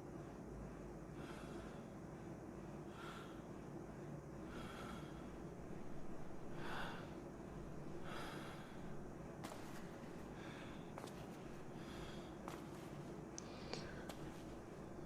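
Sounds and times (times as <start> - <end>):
heavy breathing of sleeping person: 0.1 - 15.0.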